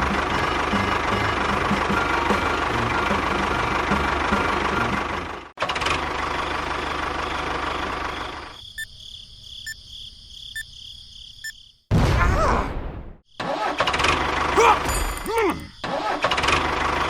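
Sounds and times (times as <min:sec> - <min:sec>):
small engine rattling: 0:00.0 - 0:08.6, 0:15.9 - 0:17.0.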